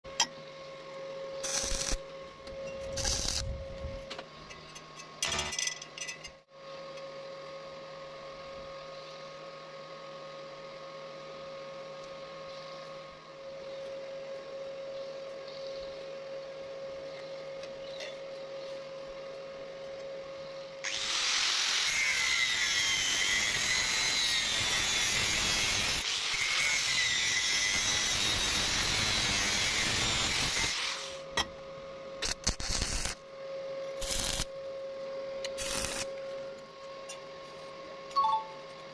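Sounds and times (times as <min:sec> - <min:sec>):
metal pipe being cut: 0:01.4 - 0:02.0, 0:20.8 - 0:31.2, 0:34.0 - 0:34.5, 0:35.6 - 0:36.1.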